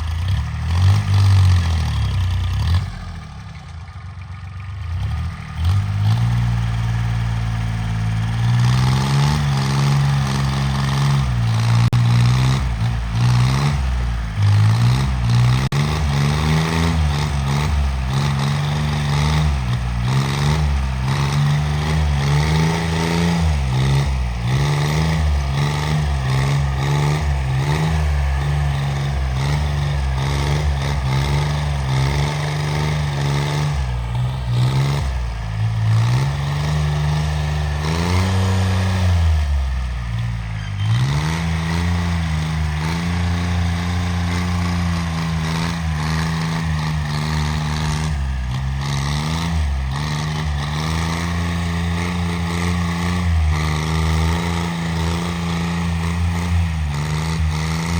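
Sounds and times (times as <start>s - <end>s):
tractor engine running loudly: 0.0s - 57.9s.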